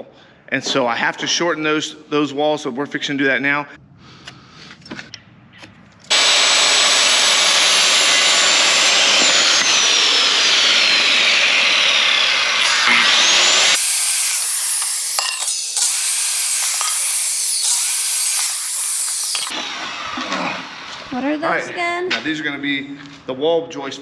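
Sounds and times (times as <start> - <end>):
power saw cutting wood: 6.1 - 20.9.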